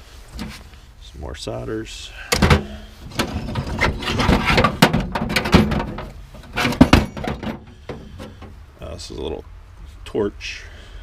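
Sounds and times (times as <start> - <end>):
scrap metal clattering: 2.3 - 8.6.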